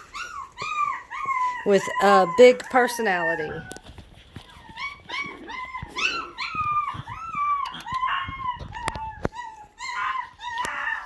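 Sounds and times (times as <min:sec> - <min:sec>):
puppy howling yelps: 0:00.0 - 0:11.0
sharp clicks: 0:07.5 - 0:09.0.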